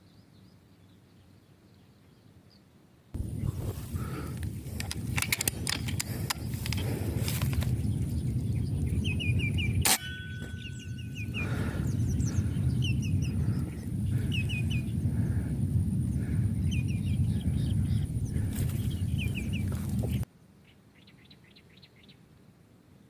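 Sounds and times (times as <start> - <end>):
bird chirping: 0.0 - 22.3
low rumble: 3.2 - 20.2
clicks: 4.3 - 7.8.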